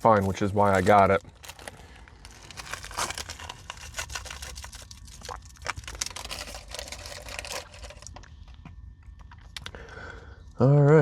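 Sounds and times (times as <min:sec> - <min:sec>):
plastic wrapper crinkling: 0:00.0 - 0:08.6.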